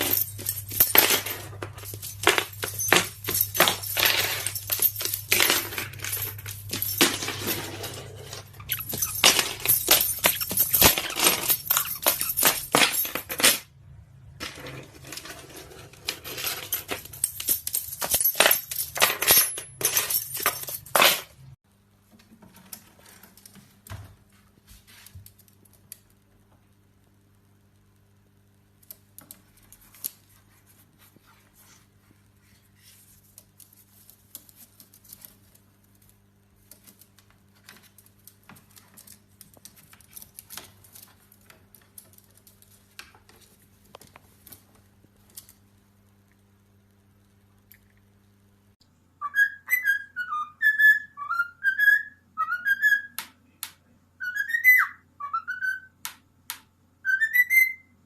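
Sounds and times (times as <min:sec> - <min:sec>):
parrot whistling: 0:49.2 - 0:53.2, 0:54.2 - 0:56.0, 0:57.0 - 0:57.9.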